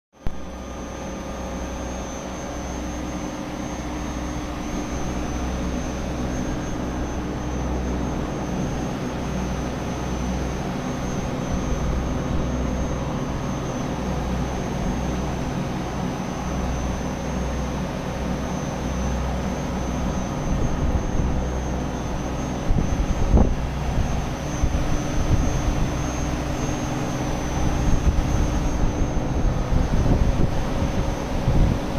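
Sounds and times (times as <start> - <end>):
compressor unit humming: 0.2 - 31.9
wind on microphone: 20.3 - 31.9.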